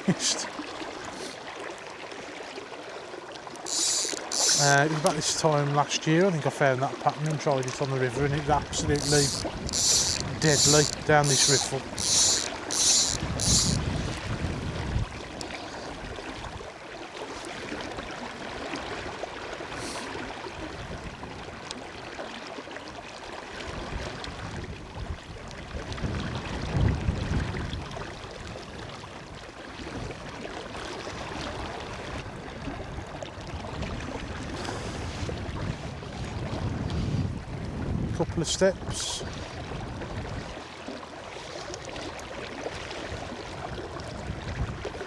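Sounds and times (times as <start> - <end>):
river water rushing: 0.0 - 14.6
wind buffeting microphone: 8.1 - 15.4, 23.9 - 27.9, 32.3 - 38.4.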